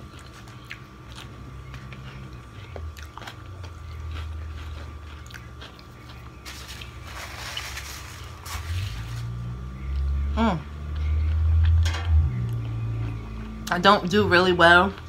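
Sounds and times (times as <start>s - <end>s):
person chewing food: 0.0s - 7.8s, 9.0s - 13.7s
low steady hum: 0.0s - 15.0s
paper napkin rustling: 6.4s - 9.4s.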